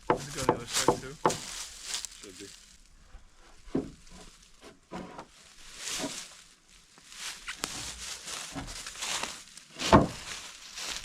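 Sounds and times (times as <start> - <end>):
footsteps: 0.0 - 11.0
rustling: 0.0 - 11.0
heavy thump: 9.9 - 10.3.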